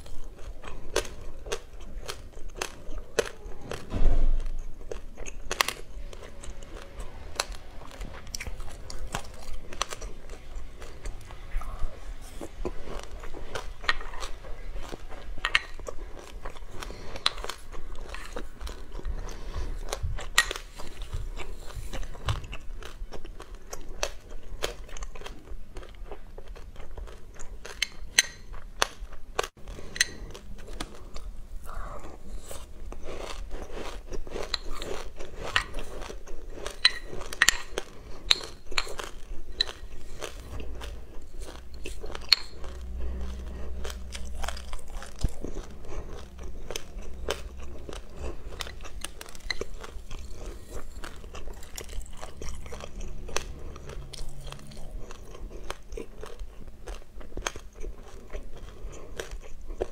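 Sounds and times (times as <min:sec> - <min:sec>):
chewing crunchy seeds: 0:00.0 - 0:59.9
loud thump: 0:03.8 - 0:04.5.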